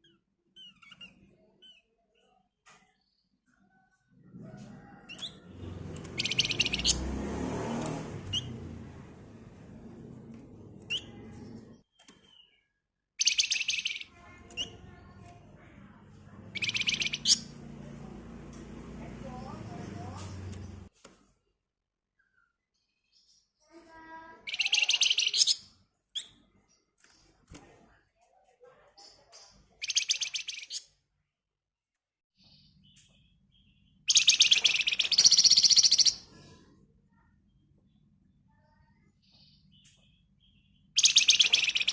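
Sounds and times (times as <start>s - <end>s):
bird chirping: 0.0s - 4.1s, 4.8s - 8.8s, 9.6s - 17.9s, 22.2s - 27.4s, 29.0s - 31.0s, 32.4s - 36.6s, 38.8s - 41.9s
songbird rattling trill: 6.1s - 7.1s, 13.2s - 15.0s, 16.5s - 17.6s, 34.1s - 36.2s, 41.0s - 41.9s
bird rattling trills: 34.1s - 36.2s, 41.0s - 41.9s.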